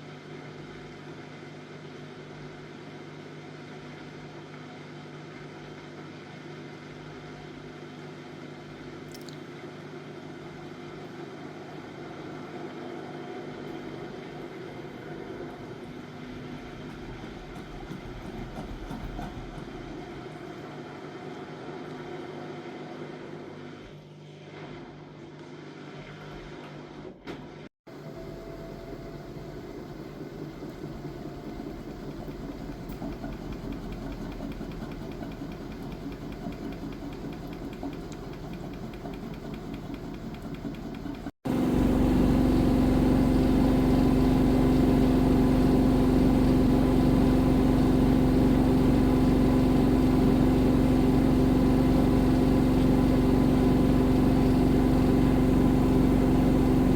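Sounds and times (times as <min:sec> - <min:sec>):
washing machine whirring: 0:11.2 - 0:23.7, 0:26.5 - 0:56.9.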